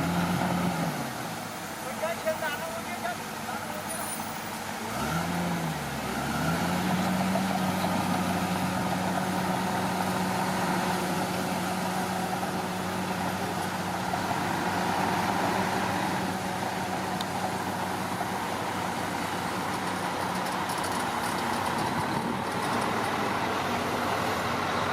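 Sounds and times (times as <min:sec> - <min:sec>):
bulldozer diesel engine running: 0:00.0 - 0:24.9.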